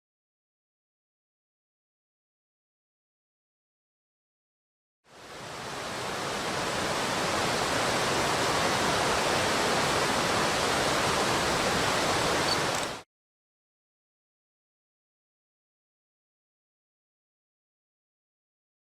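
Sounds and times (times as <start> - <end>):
stream rushing over rapids: 5.1 - 13.0.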